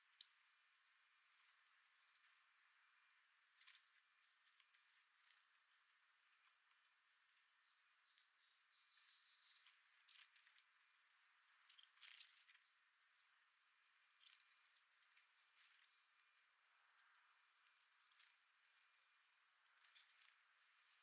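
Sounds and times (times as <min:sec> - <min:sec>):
high thin bird calls: 0:09.2 - 0:10.4, 0:11.7 - 0:12.5.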